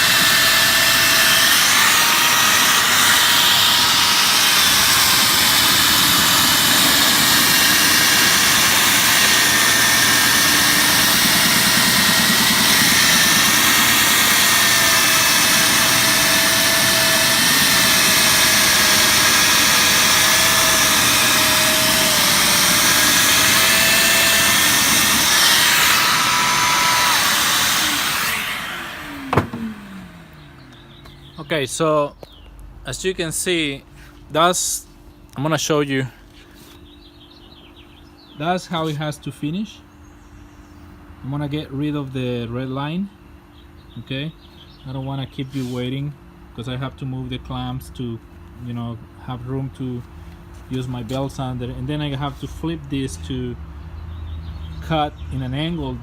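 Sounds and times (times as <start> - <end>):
circular saw cutting wood: 0.0 - 31.2.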